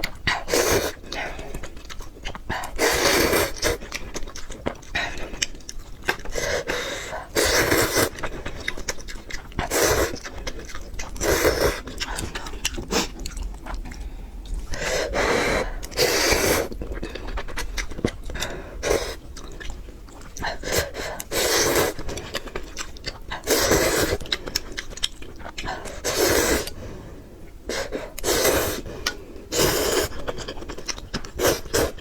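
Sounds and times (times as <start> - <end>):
soft chewing: 0.0 - 32.0
breathy noodle slurps: 2.7 - 3.8, 6.3 - 8.3, 9.6 - 10.2, 11.1 - 13.5, 14.6 - 16.8, 23.4 - 24.3, 25.7 - 26.8, 27.7 - 28.9, 29.5 - 30.3.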